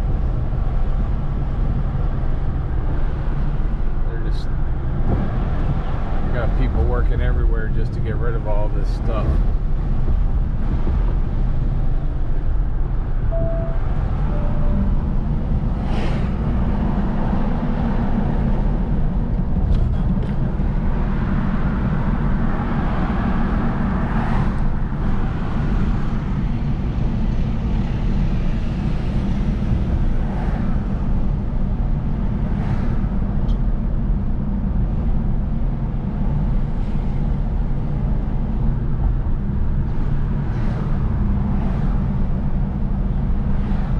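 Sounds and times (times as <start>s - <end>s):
car engine and road rumble: 0.0s - 43.9s
faint beeps: 13.3s - 15.1s.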